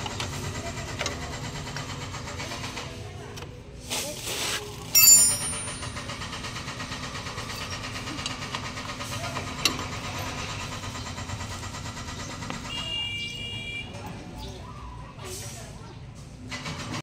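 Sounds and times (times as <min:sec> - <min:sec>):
brief high tone: 0:05.0 - 0:06.0.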